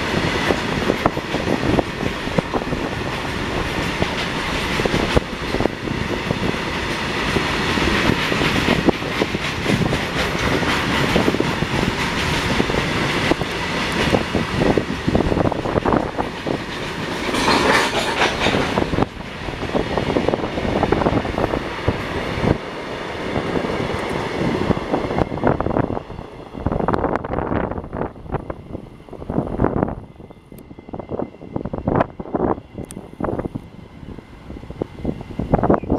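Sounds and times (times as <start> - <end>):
train wheels clattering: 0.0 - 22.4.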